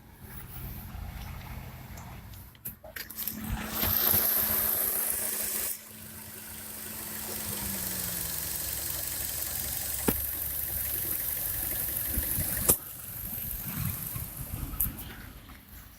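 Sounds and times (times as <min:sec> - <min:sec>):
car engine running: 0:03.4 - 0:15.6.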